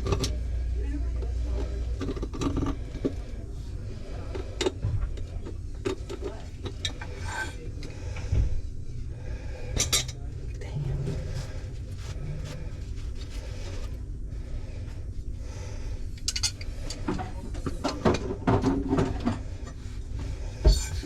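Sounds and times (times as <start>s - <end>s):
low rumble: 7.8s - 18.5s.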